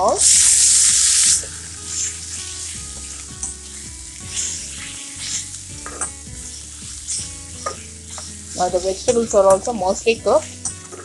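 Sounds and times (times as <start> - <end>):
vegetables sizzling: 0.0 - 11.0
metal spatula scraping pan: 1.4 - 9.2.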